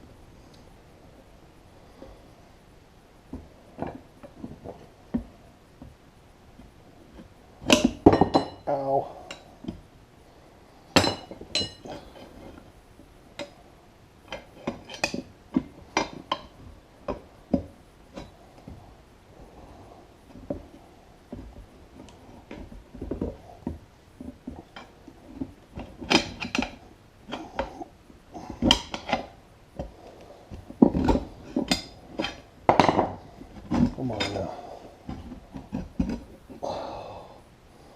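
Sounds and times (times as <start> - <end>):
metal tools clanking on wheel rim: 31.0 - 34.6.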